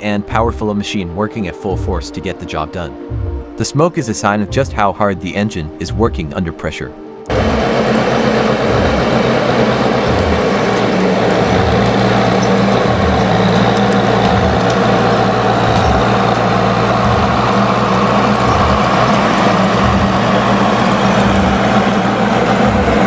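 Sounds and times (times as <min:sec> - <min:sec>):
diesel engine running under load: 0:07.3 - 0:23.0.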